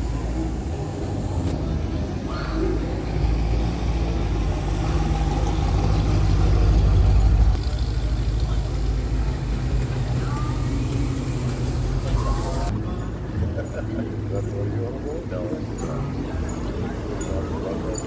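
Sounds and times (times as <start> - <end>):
car engine rumbling driving past: 0.0 - 12.7.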